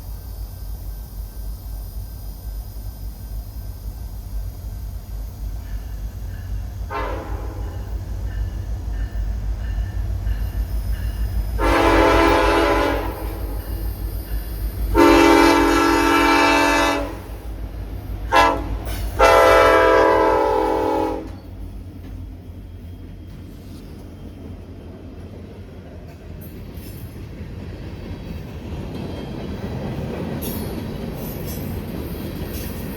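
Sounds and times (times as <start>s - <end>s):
train rumbling: 0.0s - 32.9s
locomotive horn blasts: 6.9s - 7.9s, 11.6s - 13.8s, 14.9s - 17.5s, 18.3s - 21.5s.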